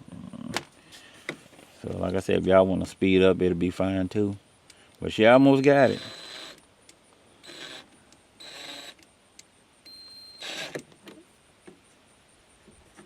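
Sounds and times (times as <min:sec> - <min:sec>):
steady whine: 0:05.0 - 0:10.3.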